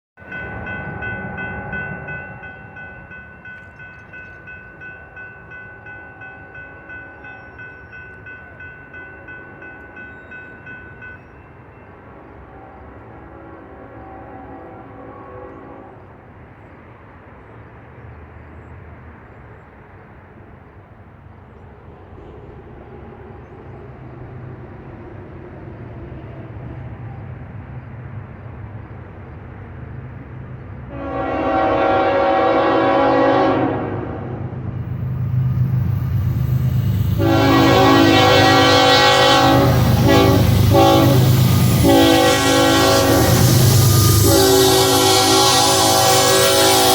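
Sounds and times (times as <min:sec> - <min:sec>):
diesel locomotive engine rumble: 0:00.2 - 0:46.9
wheel and rail noise: 0:00.2 - 0:46.9
train air horn blast: 0:12.5 - 0:16.1, 0:30.9 - 0:34.5, 0:36.8 - 0:46.9.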